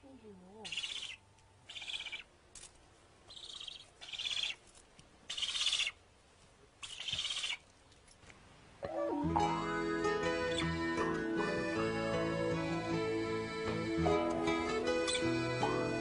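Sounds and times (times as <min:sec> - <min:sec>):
birds rasping calls: 0:00.6 - 0:02.3, 0:03.3 - 0:04.6, 0:05.3 - 0:06.0, 0:06.8 - 0:07.6, 0:10.2 - 0:11.0, 0:14.7 - 0:16.0.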